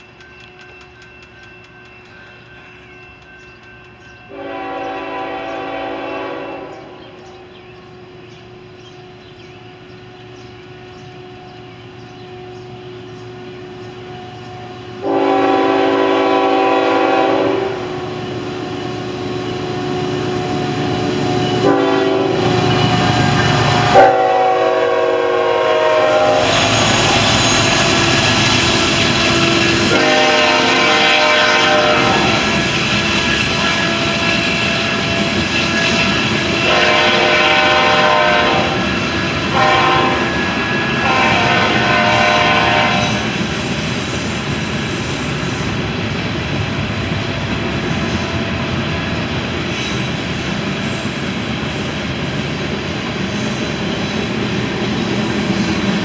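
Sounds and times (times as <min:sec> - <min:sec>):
train rumble: 0:00.0 - 0:56.0
locomotive air horn blasts: 0:04.3 - 0:07.0, 0:15.0 - 0:18.2, 0:21.6 - 0:28.2, 0:29.8 - 0:32.8, 0:36.6 - 0:43.4.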